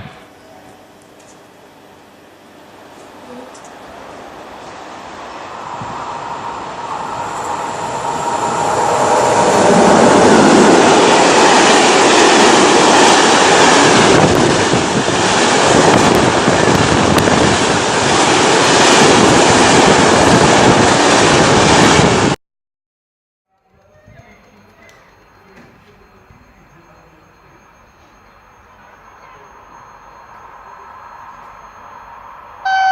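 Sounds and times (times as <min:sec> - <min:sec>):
train passing at speed: 0:01.7 - 0:22.4, 0:23.8 - 0:32.9.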